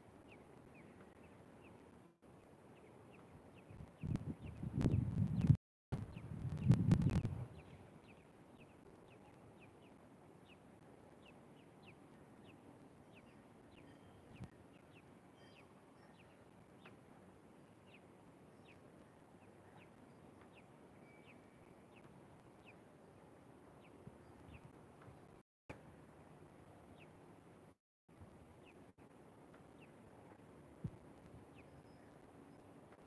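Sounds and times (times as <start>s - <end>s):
faint high bird chirps: 11.3s - 17.0s, 17.6s - 22.9s, 31.4s - 32.7s.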